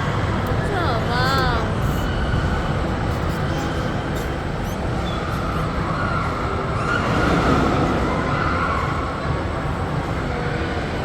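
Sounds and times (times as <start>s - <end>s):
hall ambience: 0.0s - 2.2s
low rumble of ride machinery: 0.0s - 11.0s.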